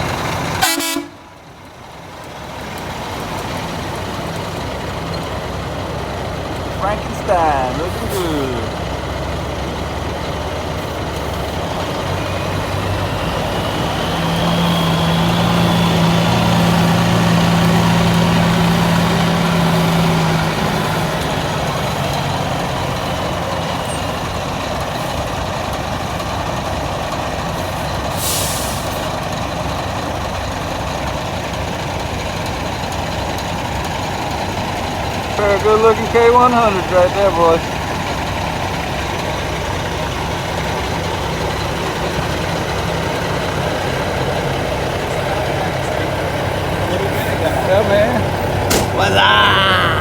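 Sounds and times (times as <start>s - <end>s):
diesel truck engine running: 0.0s - 50.0s
air brake hiss: 28.1s - 29.0s.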